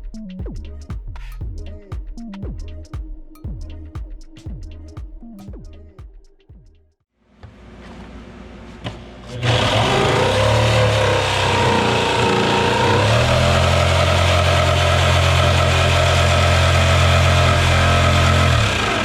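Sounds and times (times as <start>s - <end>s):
power saw cutting wood: 9.3s - 19.0s.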